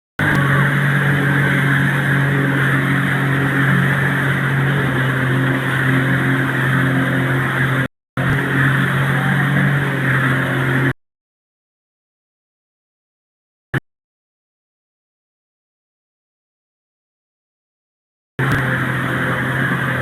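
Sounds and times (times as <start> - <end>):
engine running at speed: 0.2 - 11.0, 18.4 - 20.0.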